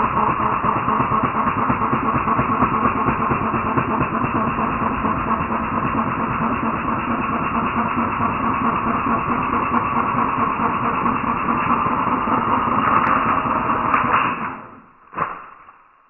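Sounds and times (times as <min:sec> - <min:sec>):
reciprocating saw running: 0:00.0 - 0:15.6.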